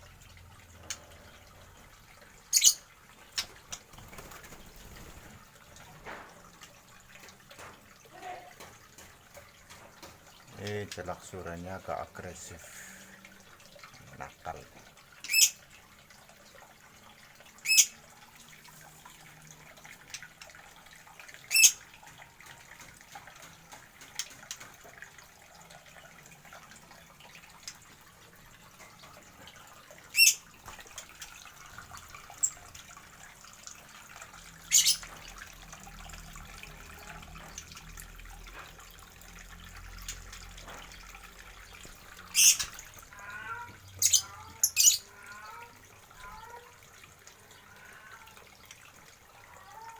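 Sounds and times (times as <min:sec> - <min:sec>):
birds giving sharp high calls: 0:02.5 - 0:02.9, 0:17.6 - 0:18.0, 0:21.5 - 0:21.8, 0:30.1 - 0:30.5, 0:34.7 - 0:35.1, 0:42.3 - 0:46.6.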